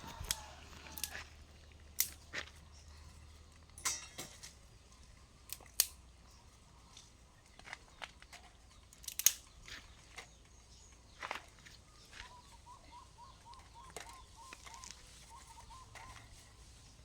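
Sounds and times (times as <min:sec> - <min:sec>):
sharp clicks and snaps: 0:01.9 - 0:02.2, 0:05.5 - 0:06.0, 0:08.9 - 0:09.5.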